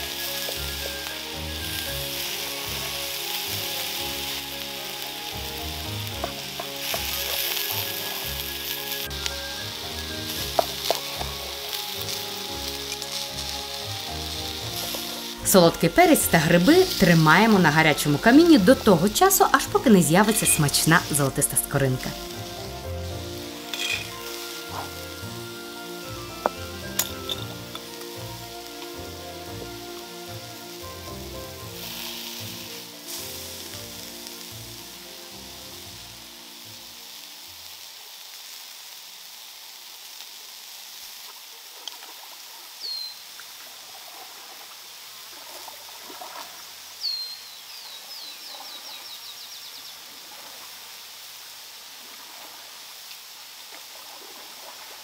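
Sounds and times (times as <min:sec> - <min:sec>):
sharp crackles: 0:00.0 - 0:30.1, 0:31.6 - 0:43.4
vegetables sizzling on hot stones: 0:00.0 - 0:43.9, 0:46.6 - 0:52.1, 0:52.9 - 0:53.9.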